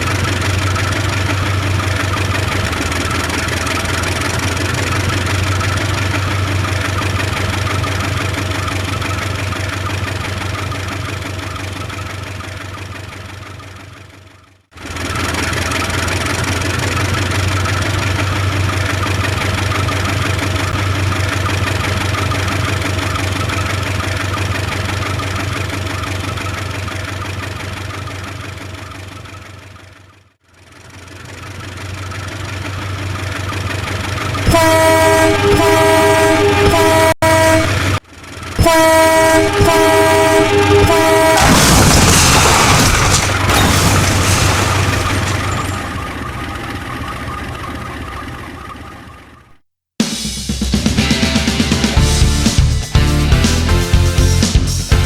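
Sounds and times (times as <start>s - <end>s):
locomotive engine rumbling: 0.0s - 49.6s
multi-tone train horn blasts: 34.4s - 38.0s, 38.6s - 41.6s.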